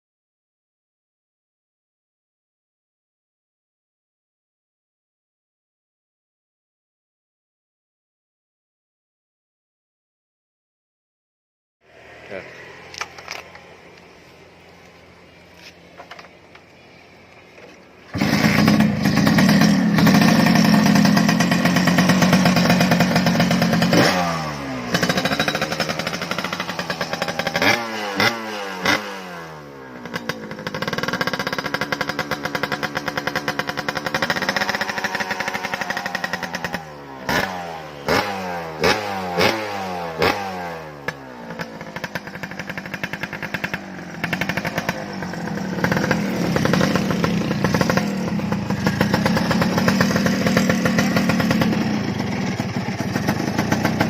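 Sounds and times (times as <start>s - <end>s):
two-stroke engine revving: 18.1s - 54.0s.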